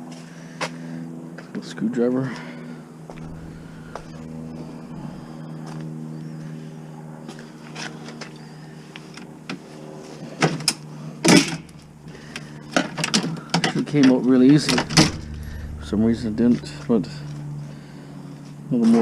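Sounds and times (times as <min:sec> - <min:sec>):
steady low hum: 0:02.7 - 0:07.2, 0:14.2 - 0:18.7.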